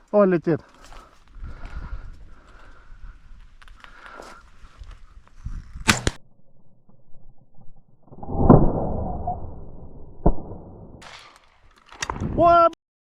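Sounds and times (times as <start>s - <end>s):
sharp crack: 5.8s - 6.2s
shotgun shot: 5.8s - 6.2s.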